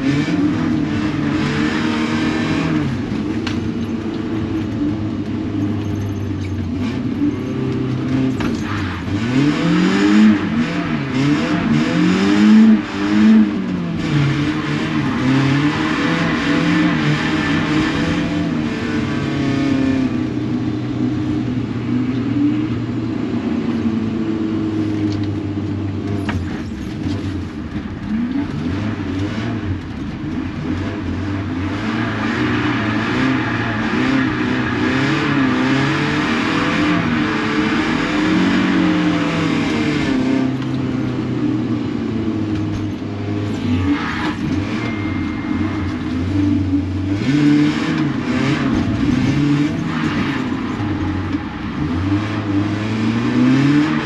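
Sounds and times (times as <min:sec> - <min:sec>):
car engine revving: 0:00.0 - 0:54.0
rushing noise: 0:43.3 - 0:54.0.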